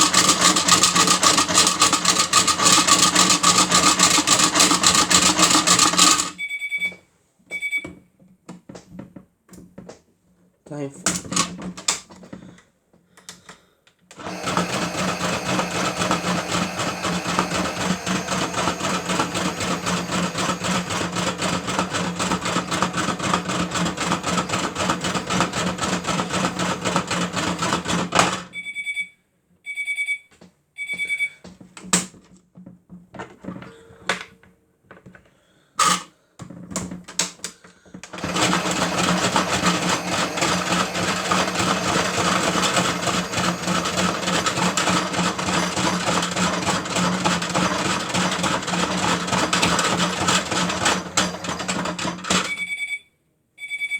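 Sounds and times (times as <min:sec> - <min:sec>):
batteries rattling in drum: 0:00.0 - 0:06.4
small motor hum: 0:14.2 - 0:27.8, 0:38.2 - 0:52.0
toy beeps: 0:52.5 - 0:53.9.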